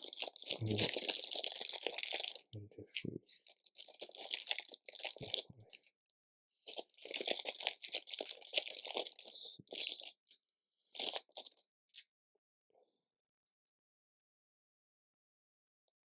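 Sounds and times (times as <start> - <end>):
plastic bricks rummaged by hand: 0.0 - 2.5, 3.4 - 5.4, 6.7 - 10.1, 11.0 - 11.6.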